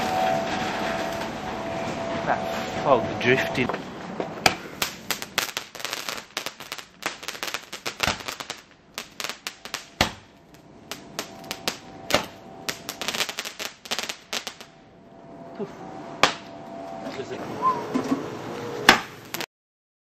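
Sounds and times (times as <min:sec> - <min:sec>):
fireworks crackling and popping: 0:00.0 - 0:01.7, 0:03.2 - 0:14.7, 0:18.9 - 0:19.5
firework bangs: 0:00.0 - 0:14.7, 0:18.9 - 0:19.5.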